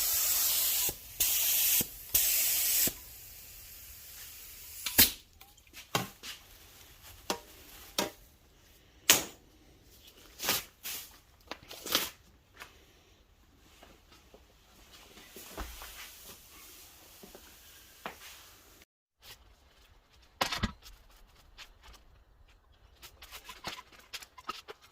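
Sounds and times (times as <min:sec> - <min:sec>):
paint spray hissing: 0:00.0 - 0:05.0.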